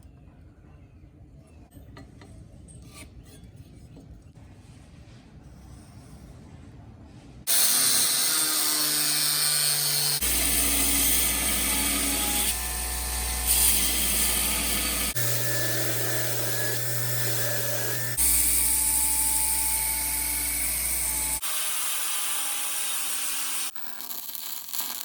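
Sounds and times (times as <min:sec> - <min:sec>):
power tool motor hum: 0:07.5 - 0:23.8.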